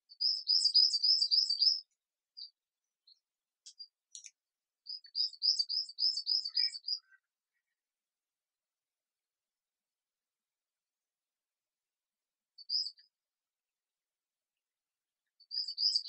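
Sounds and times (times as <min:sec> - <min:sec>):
short bird chirps: 0:00.1 - 0:07.8, 0:12.6 - 0:13.1, 0:15.3 - 0:16.0
bird singing rapid high notes: 0:04.9 - 0:07.2.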